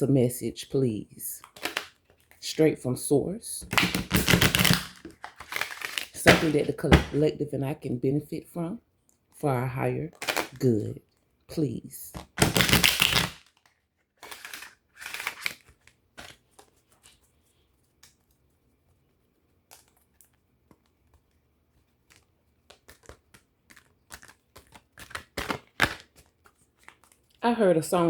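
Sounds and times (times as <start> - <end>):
cards being shuffled: 1.4 - 2.4, 3.7 - 7.2, 12.1 - 18.5, 19.6 - 27.4
card slaps: 3.7 - 7.2.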